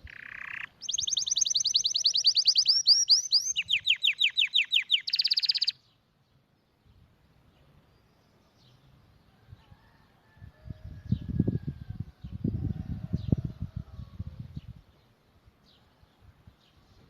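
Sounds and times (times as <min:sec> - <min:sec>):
canary singing: 0:00.0 - 0:05.8.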